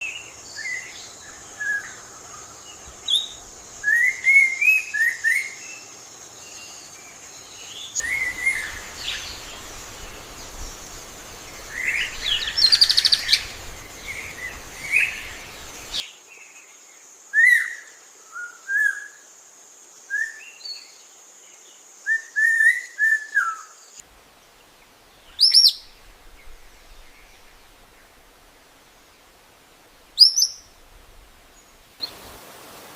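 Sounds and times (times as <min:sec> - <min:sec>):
loud whistled bird call: 0:03.1 - 0:05.6, 0:08.0 - 0:09.8, 0:22.1 - 0:23.8
birds chirping and calling: 0:07.6 - 0:16.0
bird trill: 0:11.5 - 0:16.0, 0:30.2 - 0:30.7.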